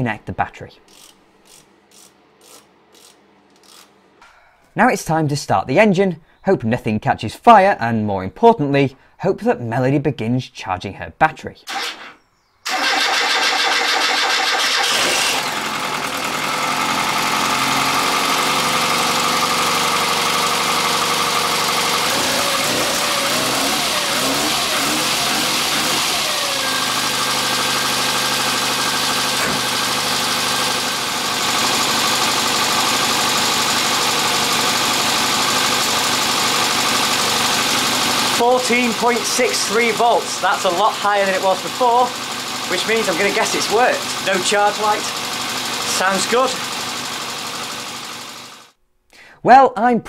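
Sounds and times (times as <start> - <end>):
car engine idling: 12.8 - 48.7.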